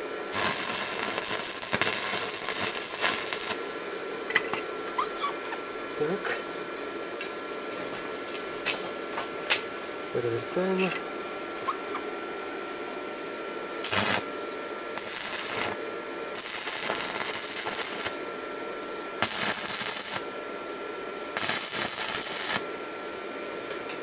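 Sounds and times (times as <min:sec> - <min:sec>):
welding arc crackling: 0:00.3 - 0:03.7, 0:13.8 - 0:14.3, 0:15.0 - 0:18.2, 0:19.2 - 0:20.4, 0:21.3 - 0:22.9.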